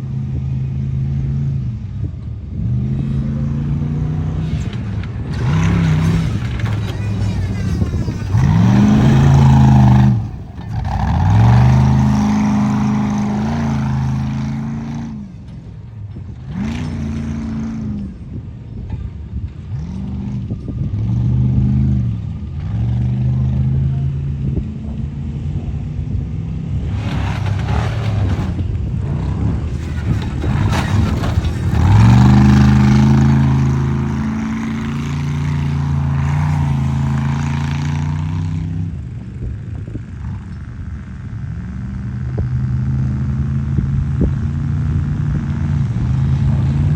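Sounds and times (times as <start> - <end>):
truck engine revving hard: 2.5 - 18.5, 19.7 - 39.2.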